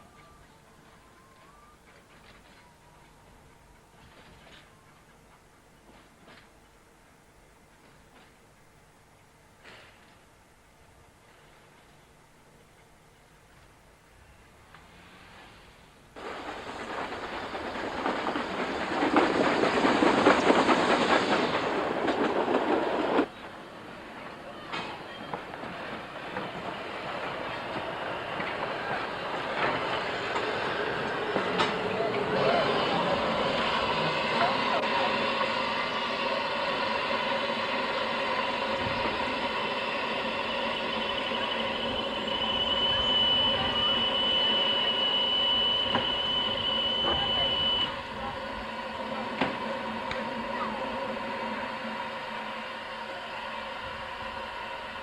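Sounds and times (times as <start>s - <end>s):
steam train wheels clattering on rails: 14.7s - 51.5s.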